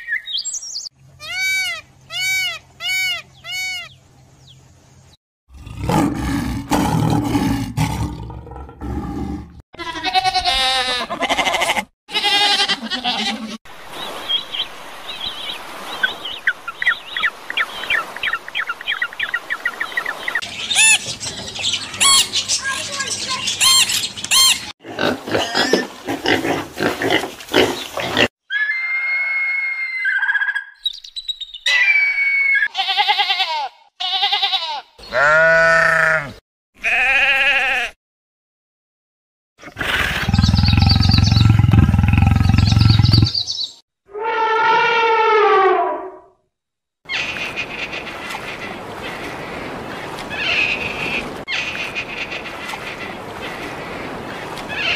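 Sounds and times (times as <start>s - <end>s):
sheep bleating: 9.8s - 13.6s, 32.7s - 38.0s.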